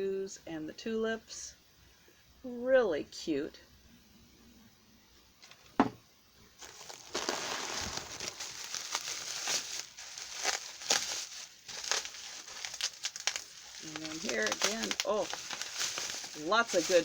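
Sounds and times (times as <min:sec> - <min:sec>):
bubble wrap crinkling: 0:06.6 - 0:17.0.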